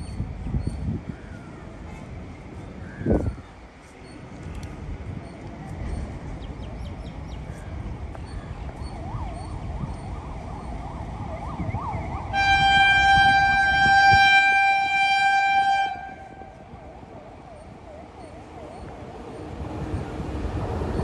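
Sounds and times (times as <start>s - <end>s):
locomotive horn blast: 12.3s - 16.7s.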